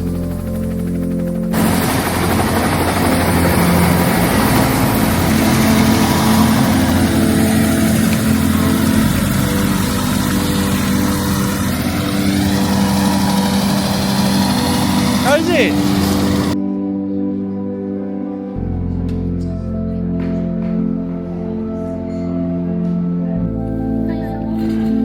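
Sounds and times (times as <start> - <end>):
helicopter engine and rotor drone: 0.0 - 16.6.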